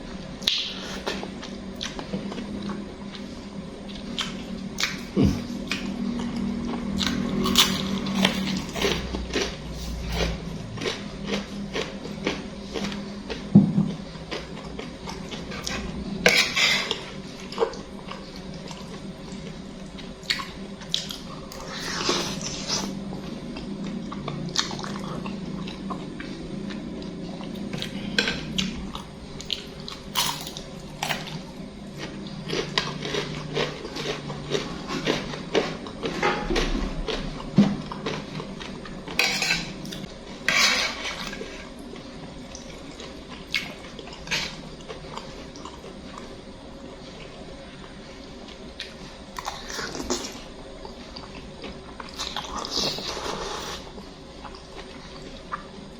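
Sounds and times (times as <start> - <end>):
cutlery scraping a bowl: 16.2 - 17.0, 39.2 - 41.6.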